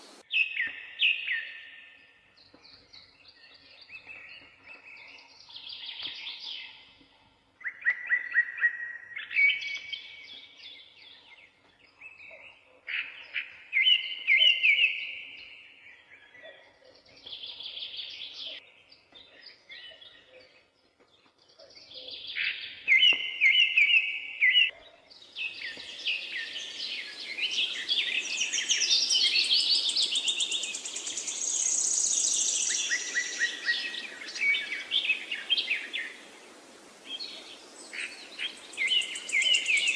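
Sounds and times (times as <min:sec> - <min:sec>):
steady hiss: 0:00.0 - 0:00.2, 0:29.8 - 0:39.9
songbirds singing trills: 0:00.0 - 0:39.9.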